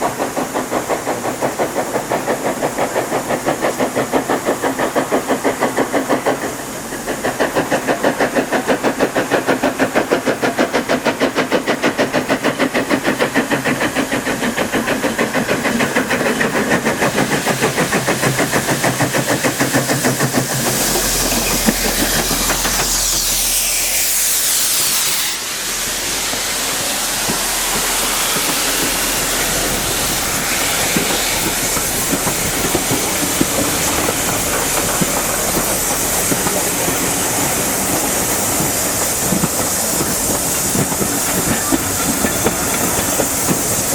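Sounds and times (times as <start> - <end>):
coaches clicking over rail joints: 0.0 - 23.2, 26.3 - 43.9
hiss of steam: 0.0 - 43.9
steam locomotive exhaust beating: 0.0 - 43.9.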